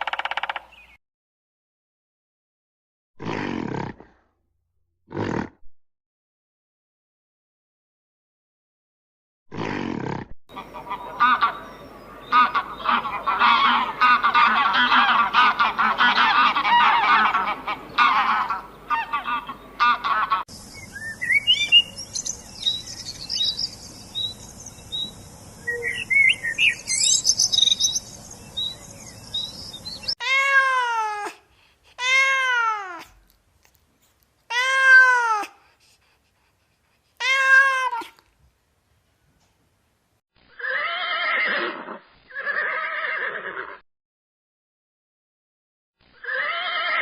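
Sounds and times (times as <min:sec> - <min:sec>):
small birds chirping: 0:00.0 - 0:01.0, 0:10.5 - 0:30.2
flock of animals calling: 0:10.5 - 0:20.4
cat meowing: 0:37.2 - 0:38.2.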